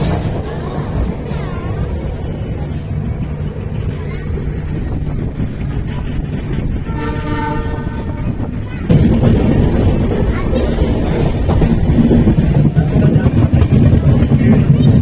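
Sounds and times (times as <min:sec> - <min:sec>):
train wheels rumbling on track: 0:00.0 - 0:15.0
train horn: 0:06.8 - 0:08.5.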